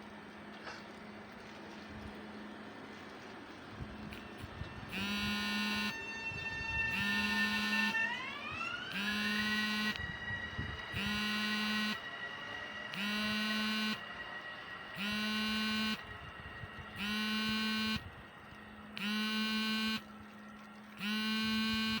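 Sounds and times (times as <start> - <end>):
electric train whine: 0.0 - 22.0
buzzer tone: 4.9 - 6.1, 6.9 - 8.1, 8.9 - 10.0, 10.9 - 12.0, 12.9 - 14.0, 15.0 - 16.0, 17.0 - 18.1, 19.0 - 20.1, 21.0 - 22.0.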